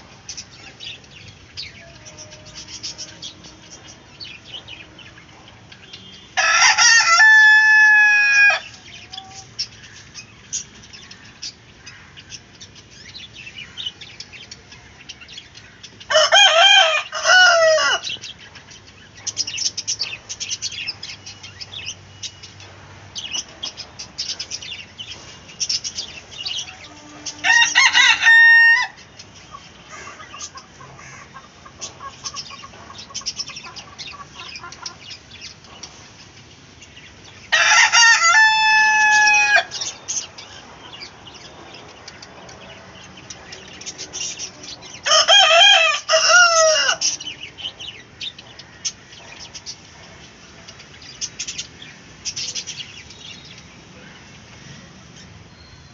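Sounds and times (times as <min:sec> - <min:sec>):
chickens clucking and chirping: 0:00.0 - 0:55.9
rooster crowing: 0:06.4 - 0:08.7, 0:16.1 - 0:18.1, 0:26.8 - 0:29.0, 0:37.5 - 0:39.9, 0:45.0 - 0:47.1.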